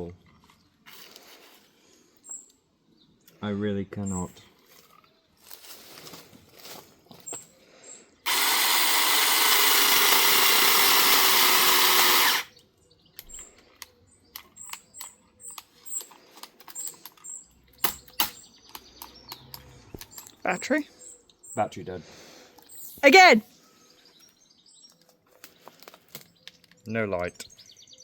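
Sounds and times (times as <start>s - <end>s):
mini chainsaw running: 8.3s - 12.5s.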